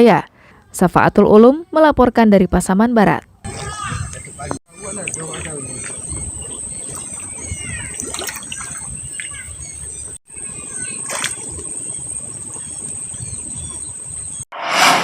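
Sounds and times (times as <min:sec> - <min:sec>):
birds chirping: 0:03.5 - 0:14.5
low rumble: 0:14.5 - 0:15.0.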